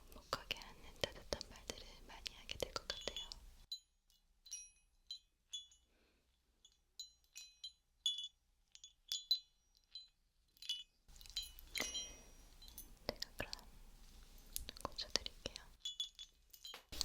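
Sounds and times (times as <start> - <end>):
small bell jingling: 2.7 - 5.9, 6.6 - 17.0.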